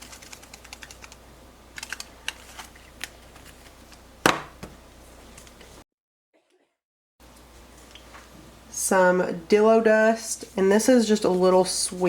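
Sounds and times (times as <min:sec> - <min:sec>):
container set down knock: 0:04.2 - 0:04.8.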